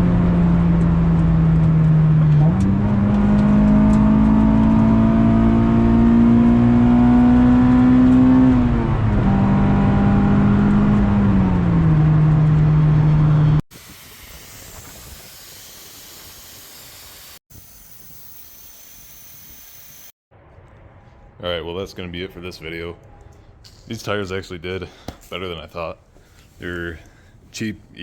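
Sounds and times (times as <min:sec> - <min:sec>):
car engine revving loud: 0:02.3 - 0:13.6.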